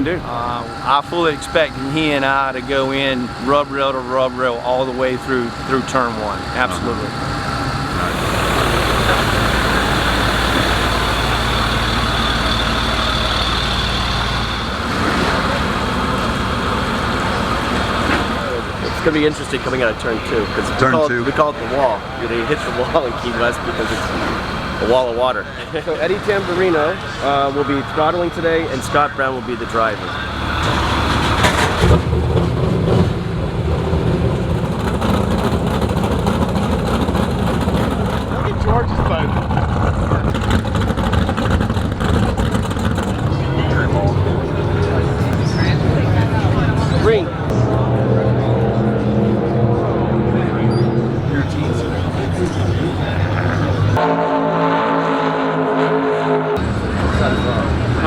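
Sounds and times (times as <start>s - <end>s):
large engine running: 0.0s - 54.0s, 56.6s - 58.0s.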